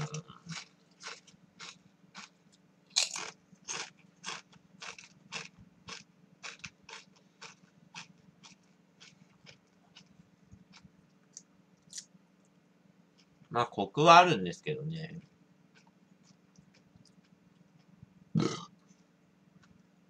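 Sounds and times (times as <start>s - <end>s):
chewing crisp potato chips: 0.0s - 12.1s, 15.7s - 18.5s.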